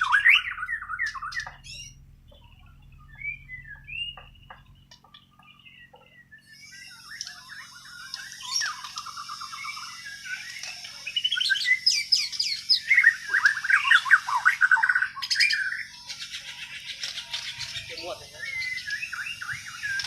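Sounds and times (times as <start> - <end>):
bird singing whistles and trills: 0.0 - 20.0.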